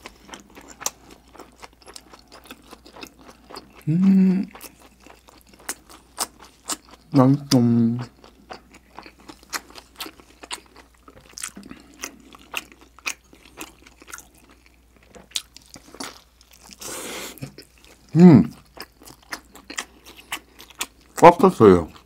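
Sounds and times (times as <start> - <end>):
person humming: 3.8 - 4.5
breathy hiss: 16.8 - 17.5
person chewing with wet mouth clicks: 17.4 - 21.2.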